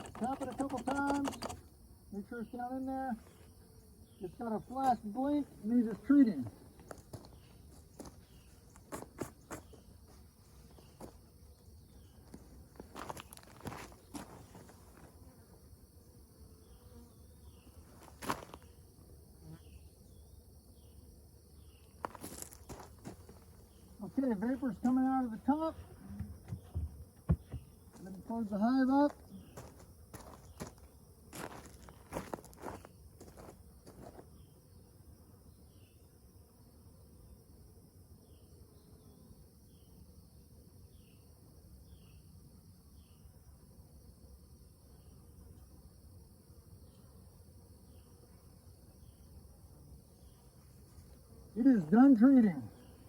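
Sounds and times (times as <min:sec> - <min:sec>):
sharp click: 0:00.0 - 0:01.6
honeybees buzzing faintly: 0:00.0 - 0:53.0.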